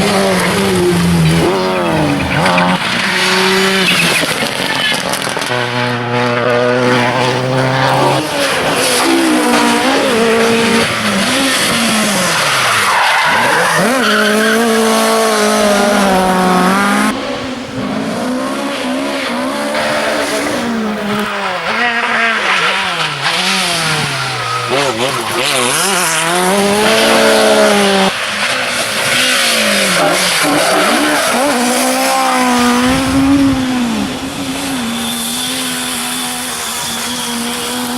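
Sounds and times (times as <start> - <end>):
rally car engine revving: 0.0 - 37.9.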